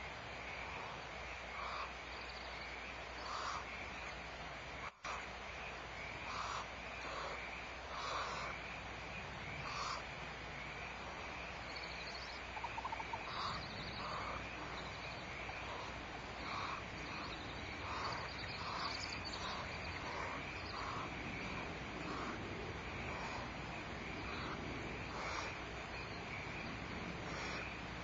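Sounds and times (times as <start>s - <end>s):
outdoor background hum: 0.0s - 28.0s
soft animal calls: 0.6s - 2.5s, 3.2s - 3.8s, 6.1s - 8.6s, 9.6s - 27.9s.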